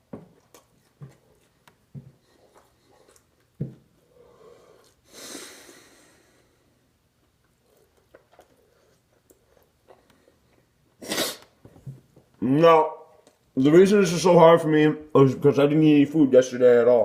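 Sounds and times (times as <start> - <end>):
man chewing food: 0.0 - 5.9, 6.7 - 12.4
breath out through nose: 4.1 - 6.6.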